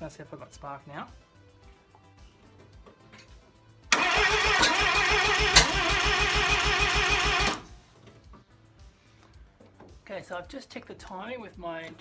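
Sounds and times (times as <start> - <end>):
starter motor cranking engine: 3.9 - 7.8
sharp clicks: 4.0 - 7.7.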